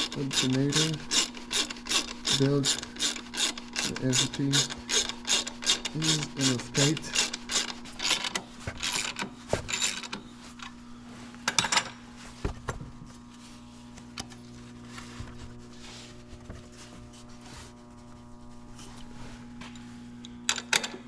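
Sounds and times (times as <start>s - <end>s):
ratchet wrench clicking: 0.0s - 8.4s.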